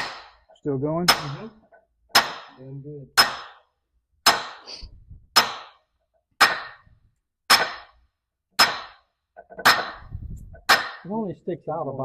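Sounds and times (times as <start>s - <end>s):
hammer striking metal: 0.0s - 4.7s, 5.3s - 8.0s, 8.6s - 11.1s.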